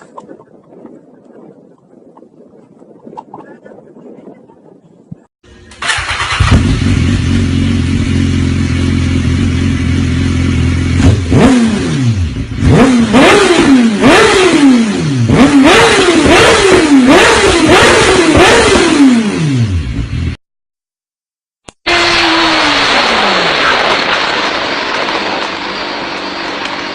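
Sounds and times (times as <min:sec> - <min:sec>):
motorcycle engine revving: 0:05.5 - 0:20.4, 0:21.8 - 0:26.9.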